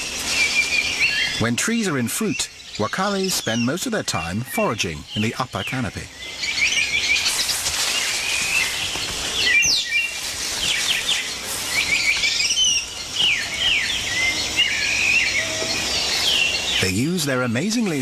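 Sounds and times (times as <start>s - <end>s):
high chirping bird calls: 0.0s - 18.0s
insects hissing: 0.0s - 18.0s.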